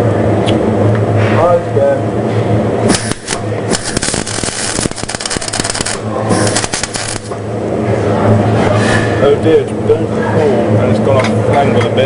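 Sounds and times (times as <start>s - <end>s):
steady low hum: 0.0s - 12.0s
welding arc crackling: 2.8s - 7.5s.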